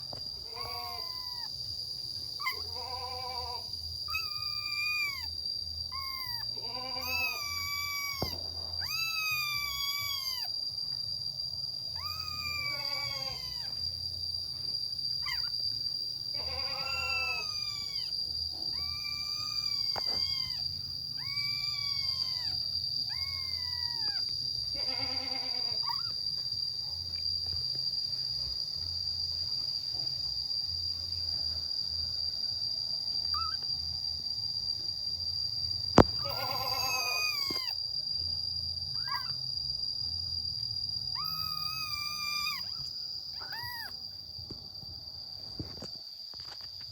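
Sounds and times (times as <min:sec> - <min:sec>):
crickets whining: 0:00.0 - 0:46.9
kittens meowing: 0:00.4 - 0:01.5, 0:02.4 - 0:10.5, 0:11.9 - 0:13.8, 0:15.2 - 0:15.5, 0:16.3 - 0:26.1, 0:33.3 - 0:33.6, 0:36.0 - 0:37.8, 0:39.0 - 0:39.3, 0:41.2 - 0:44.0.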